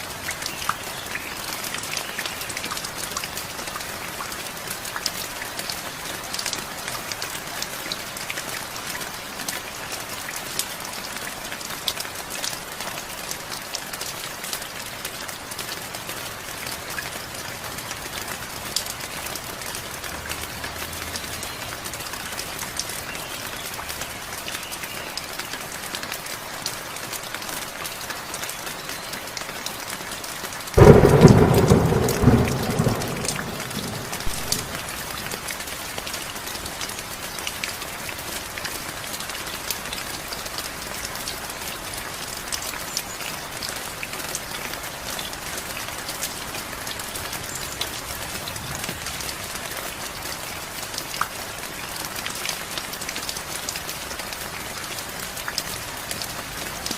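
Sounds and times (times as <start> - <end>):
heavy rain: 0.0 - 56.9
thunderclap: 30.8 - 35.0.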